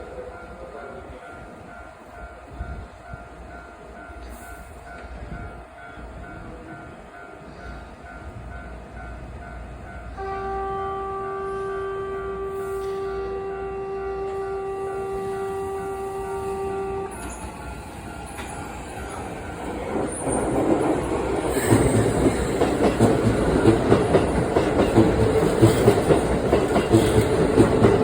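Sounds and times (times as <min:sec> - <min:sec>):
train horn: 0:10.1 - 0:17.6
train wheels clacking: 0:17.1 - 0:28.0.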